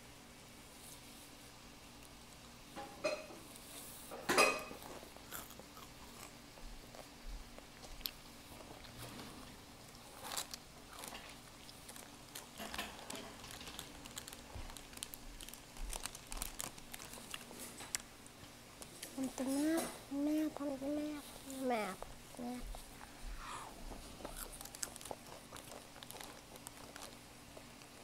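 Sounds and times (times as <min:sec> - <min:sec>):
child chewing crunchy food: 0:03.4 - 0:28.0.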